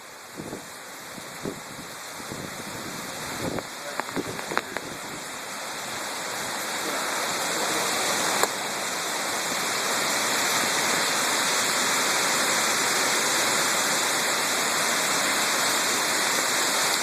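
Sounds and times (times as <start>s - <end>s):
wind storm rushing: 0.3s - 6.8s.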